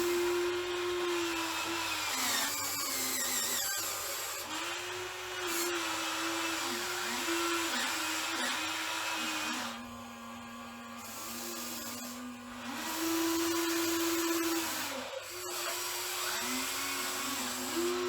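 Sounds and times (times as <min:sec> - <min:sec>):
small electric motor whine: 0:00.0 - 0:18.0
high-pitched servo whines: 0:01.6 - 0:04.6, 0:05.5 - 0:09.8, 0:11.0 - 0:18.0.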